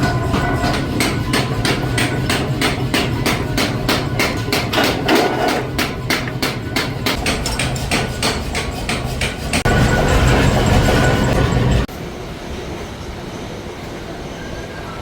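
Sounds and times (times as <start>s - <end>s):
rapid hammering on metal: 0.0s - 11.9s
machine hum: 0.0s - 13.7s.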